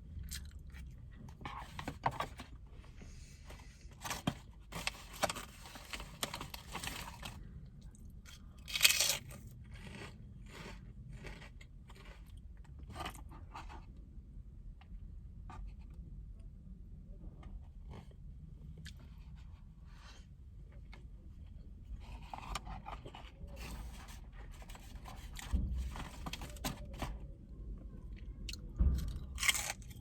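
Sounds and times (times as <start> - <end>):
crunching and chewing crisp food: 0.0 - 1.7, 3.7 - 14.0, 17.4 - 19.4, 28.1 - 30.0.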